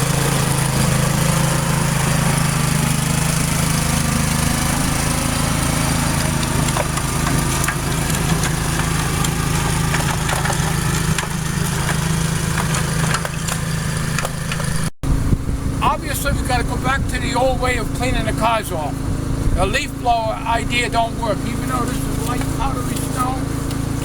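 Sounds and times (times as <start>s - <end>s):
leaf blower engine running: 0.0s - 24.0s.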